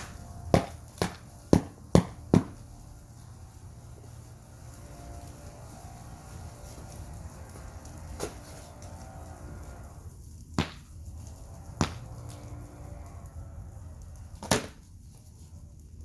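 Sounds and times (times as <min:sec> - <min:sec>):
firewood being struck: 0:00.0 - 0:02.6, 0:10.6 - 0:11.0, 0:11.8 - 0:12.1.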